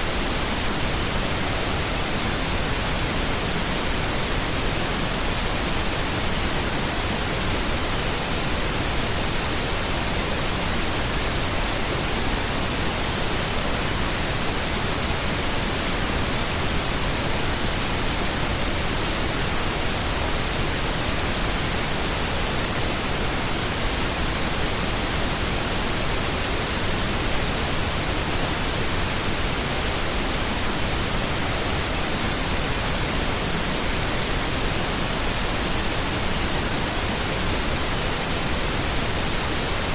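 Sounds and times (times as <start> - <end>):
steady pink noise hiss: 0.0 - 39.9.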